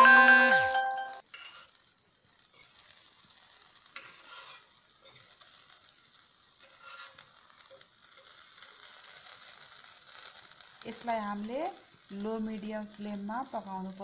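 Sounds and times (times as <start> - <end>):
food sizzling in oil: 0.1 - 14.0
metal spoon scraping a pan: 1.3 - 1.9, 2.5 - 10.8.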